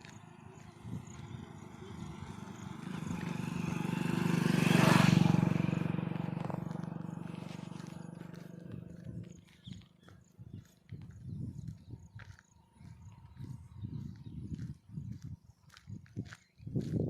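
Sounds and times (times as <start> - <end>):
passing vehicle engine: 0.0 - 9.6.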